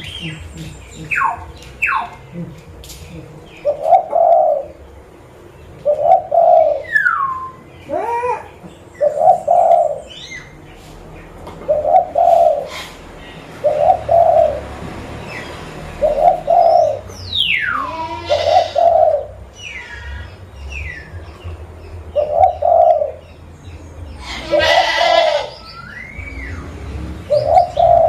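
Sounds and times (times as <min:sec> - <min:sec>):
dove cooing: 0:00.0 - 0:04.8, 0:05.8 - 0:10.3, 0:11.6 - 0:14.7, 0:16.0 - 0:19.4, 0:22.2 - 0:23.2, 0:24.2 - 0:25.6, 0:27.3 - 0:28.0
birds chirping: 0:00.0 - 0:28.0.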